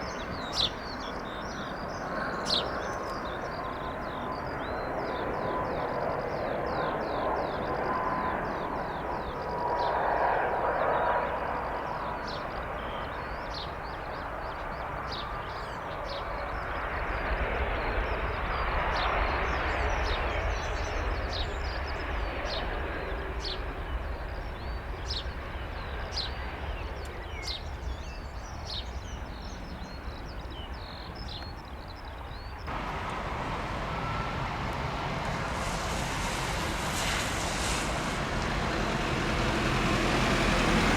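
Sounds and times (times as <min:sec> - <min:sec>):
distant jet engines rumbling: 0:32.6 - 0:40.9
flock of birds calling: 0:32.7 - 0:40.9.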